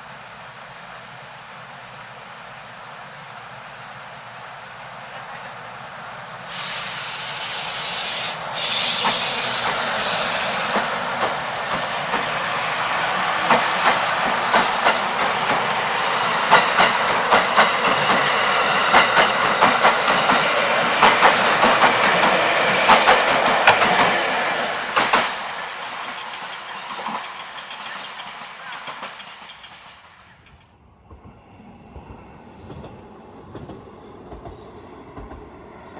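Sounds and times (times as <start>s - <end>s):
train rushing past: 0.0s - 35.9s
train wheels clicking on rail joints: 6.5s - 31.3s, 32.0s - 35.9s.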